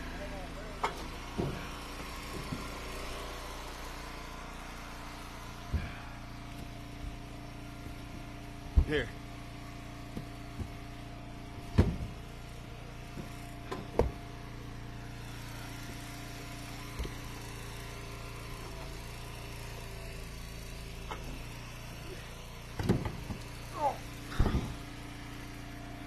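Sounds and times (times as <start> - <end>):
wood splitter engine running: 0.0 - 26.0
split firewood knocking: 11.5 - 12.2.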